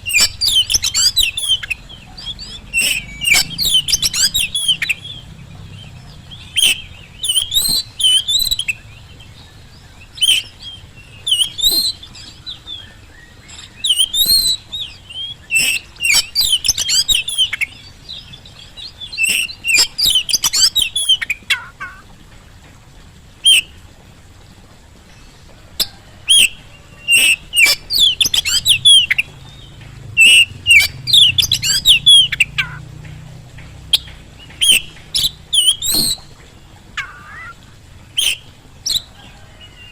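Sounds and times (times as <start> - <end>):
bird whistling and chirping: 0.0 - 5.2, 6.4 - 8.8, 10.2 - 17.8, 19.1 - 22.0, 23.4 - 23.7, 25.8 - 29.3, 30.2 - 32.8, 33.9 - 36.3, 37.0 - 37.6, 38.2 - 39.1.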